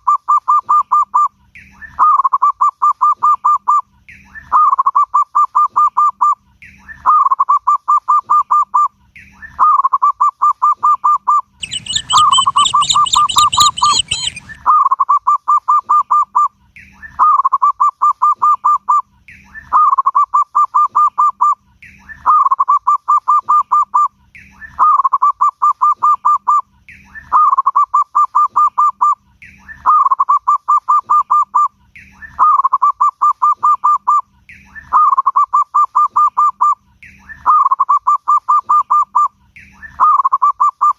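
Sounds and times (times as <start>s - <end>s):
dove cooing song: 10.4s - 14.6s
harsh raspy bird call: 11.6s - 14.6s.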